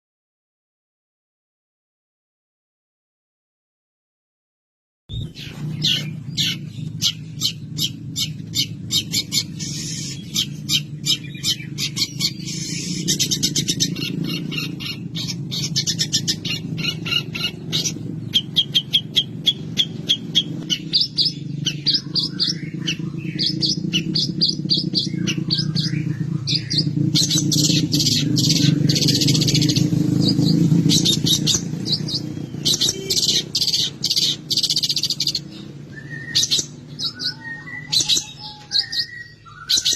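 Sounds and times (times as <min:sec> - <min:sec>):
steady low hum: 0:05.1 - 0:37.1
shrike singing chirps and trills: 0:05.1 - 0:39.9.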